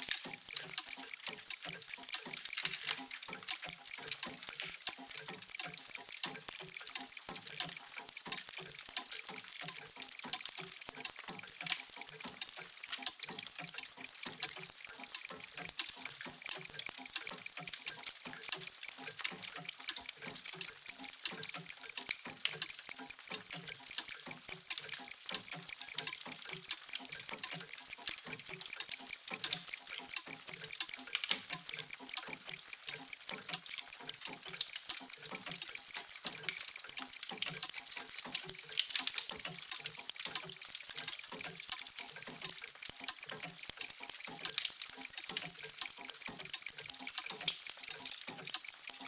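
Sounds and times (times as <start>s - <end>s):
clocks ticking: 0.0s - 49.0s.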